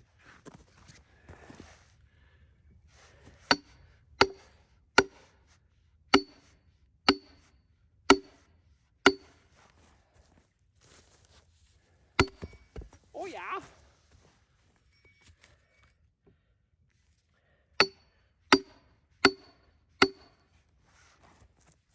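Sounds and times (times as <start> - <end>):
hammer striking steel wedge: 3.5 - 5.3, 6.2 - 6.5, 7.1 - 7.5, 8.1 - 8.4, 9.1 - 9.4, 12.2 - 12.8, 17.8 - 20.4.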